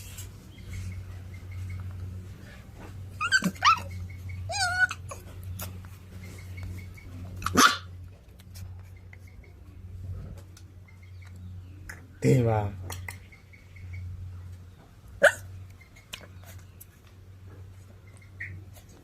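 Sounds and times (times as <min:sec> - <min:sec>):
steady low hum: 0:00.0 - 0:19.0
dog whining: 0:03.1 - 0:05.4
dog yipping: 0:03.2 - 0:05.3, 0:07.4 - 0:08.0, 0:15.2 - 0:15.5
dog barking: 0:07.4 - 0:07.9, 0:15.2 - 0:15.5.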